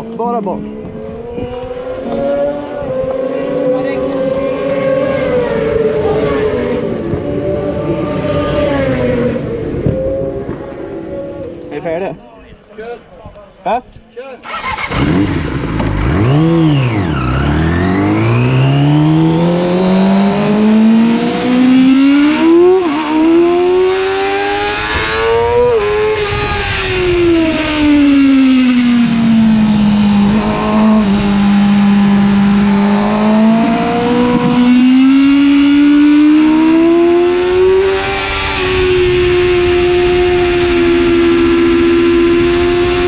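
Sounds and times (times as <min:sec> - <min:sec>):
motorcycle engine revving high: 0:14.5 - 0:43.0.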